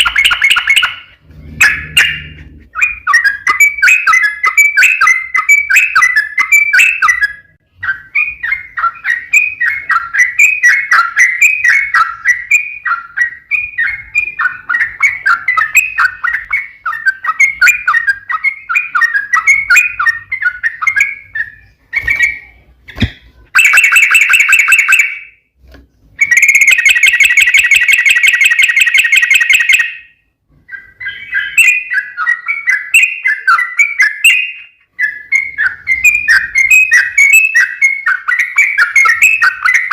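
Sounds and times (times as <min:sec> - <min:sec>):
bird chattering song: 0:00.0 - 0:22.8, 0:23.6 - 0:25.4, 0:26.2 - 0:39.9.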